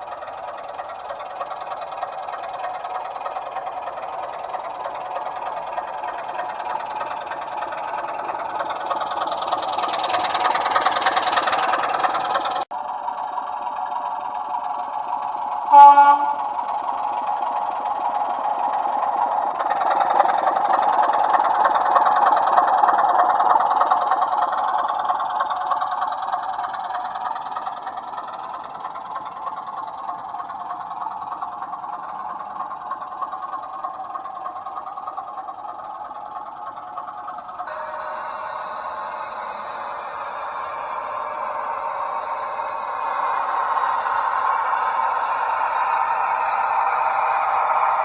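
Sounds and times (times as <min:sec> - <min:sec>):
model locomotive engine running: 0:00.0 - 0:48.0
train horn blast: 0:15.7 - 0:16.5.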